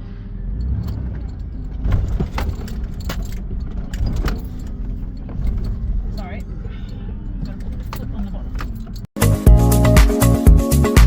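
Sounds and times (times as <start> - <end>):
vehicle cabin low rumble: 0.0 - 9.2
vehicle knocks and rattles: 0.6 - 9.2.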